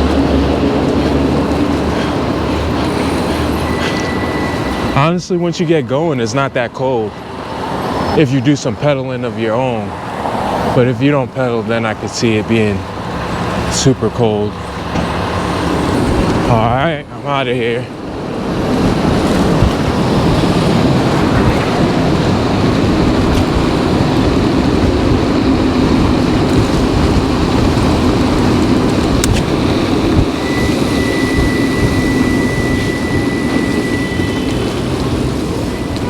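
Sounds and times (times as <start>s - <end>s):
wind and road noise: 0.0s - 36.0s
thin high tone: 2.7s - 7.3s, 30.2s - 36.0s.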